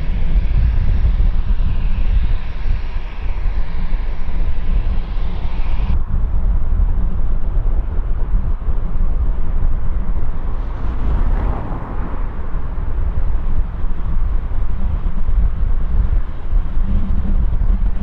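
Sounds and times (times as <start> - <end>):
distant jet aircraft: 0.0 - 18.0
wind buffeting microphone: 0.0 - 18.0
passing noise: 9.9 - 14.8.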